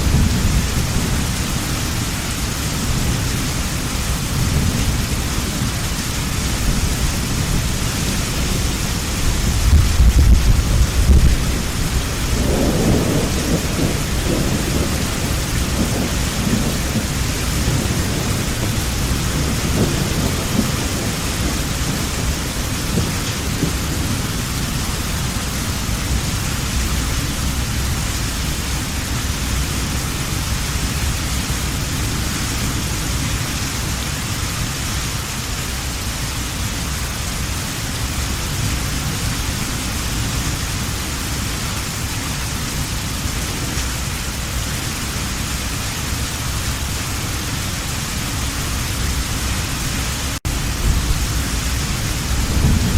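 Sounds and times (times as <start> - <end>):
low rumble of thunder: 0.0 - 34.3, 48.3 - 52.9
heavy rain falling: 0.0 - 52.9.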